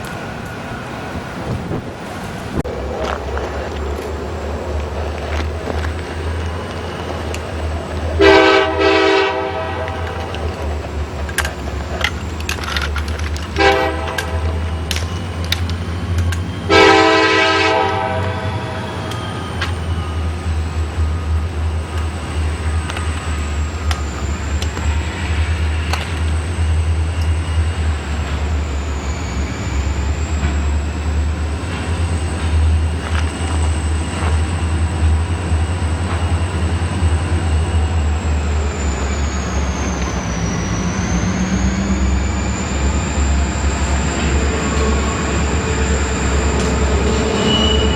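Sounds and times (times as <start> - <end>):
low rumble of train running: 0.0 - 47.9
train horn blasts: 8.1 - 10.5, 13.5 - 15.0, 16.7 - 19.0, 46.9 - 47.9.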